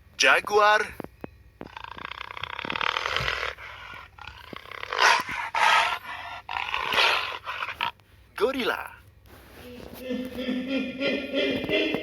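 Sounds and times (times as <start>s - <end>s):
jaguar growling: 1.6s - 8.0s
jaguar snarls: 1.6s - 8.0s.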